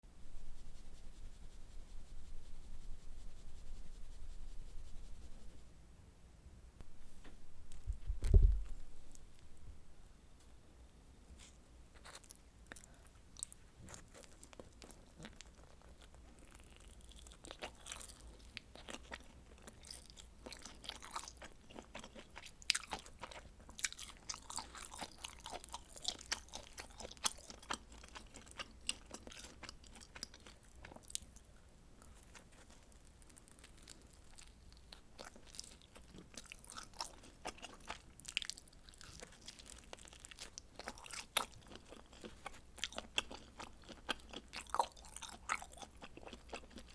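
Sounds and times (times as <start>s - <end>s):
chewing and crunching pizza: 11.4s - 46.9s.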